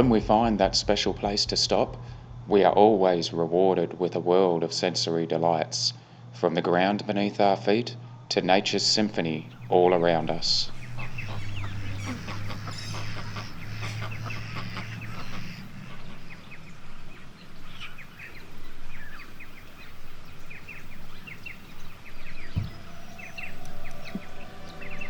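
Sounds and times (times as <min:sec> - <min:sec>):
low steady hum: 0:00.0 - 0:25.0
wild birds chirping: 0:00.0 - 0:25.0.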